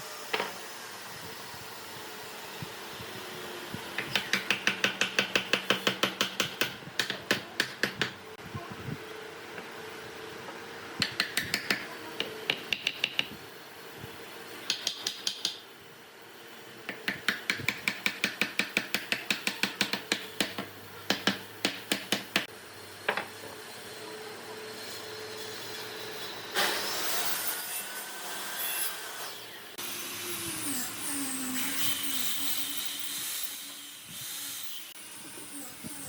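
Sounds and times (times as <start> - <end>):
sharp metallic tool taps: 14.7 - 15.6.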